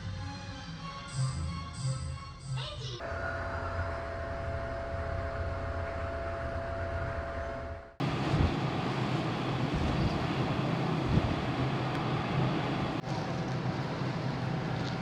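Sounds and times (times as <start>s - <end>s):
ferry droning hum: 3.0s - 15.0s
rush of wind and ship noise: 8.0s - 13.0s.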